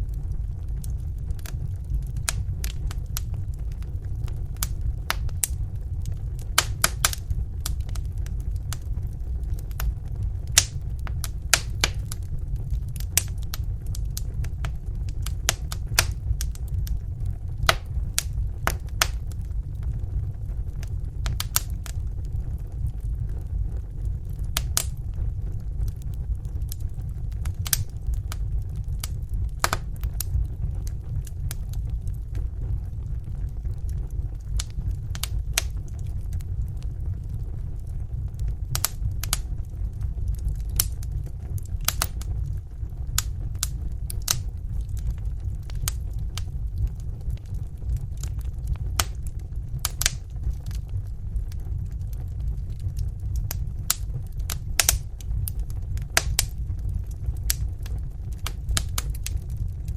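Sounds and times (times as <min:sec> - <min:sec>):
low rumble of flames: 0:00.0 - 0:59.9
wood fire crackling and popping: 0:00.0 - 0:59.9.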